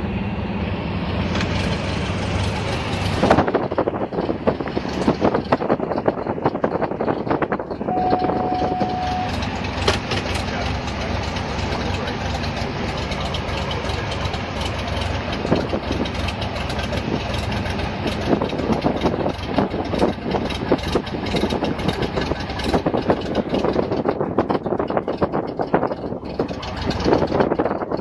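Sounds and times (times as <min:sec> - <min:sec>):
propeller plane engine droning: 0:00.0 - 0:28.0
gusty rushing noise: 0:00.6 - 0:08.7.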